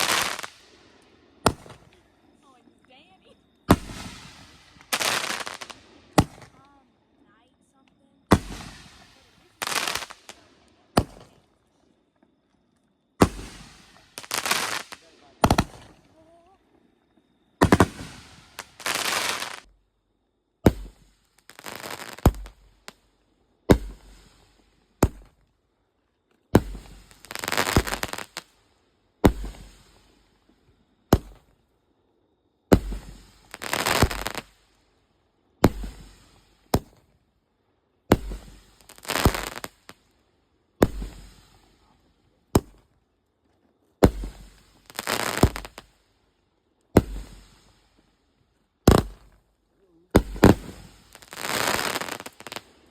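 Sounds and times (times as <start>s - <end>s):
firework crackling bursts: 0.0s - 2.0s, 3.6s - 6.8s, 8.3s - 11.4s, 13.2s - 16.2s, 17.6s - 19.7s, 20.7s - 23.0s, 23.7s - 25.4s, 26.6s - 30.4s, 32.7s - 34.9s, 35.6s - 37.1s, 38.1s - 40.1s, 40.8s - 42.8s, 44.0s - 46.1s, 46.9s - 48.2s, 48.8s - 49.4s, 50.1s - 52.9s
firework launch bangs: 1.4s - 1.9s, 3.7s - 6.6s, 8.3s - 10.4s, 11.0s - 11.4s, 13.2s - 16.0s, 17.6s - 19.6s, 20.7s - 22.6s, 23.7s - 25.4s, 26.6s - 28.4s, 29.2s - 30.2s, 32.7s - 34.6s, 35.6s - 37.1s, 38.1s - 39.9s, 40.8s - 41.9s, 44.0s - 45.9s, 46.9s - 47.9s, 48.8s - 49.4s, 50.2s - 52.7s.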